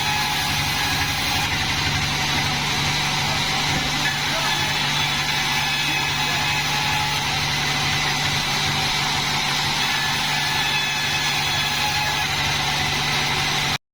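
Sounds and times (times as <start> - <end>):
sawmill machinery humming: 0.0 - 13.8.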